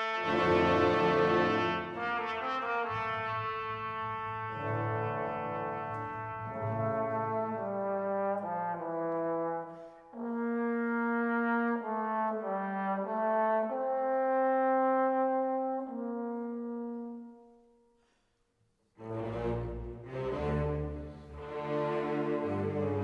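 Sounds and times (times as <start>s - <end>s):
slow horn-like melody: 0.0s - 18.1s.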